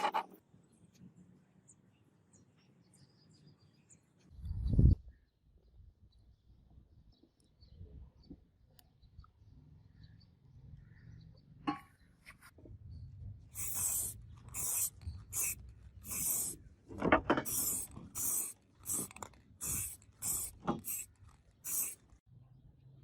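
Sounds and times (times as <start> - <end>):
abrasive rasping on steel: 13.6 - 16.6, 17.4 - 22.1.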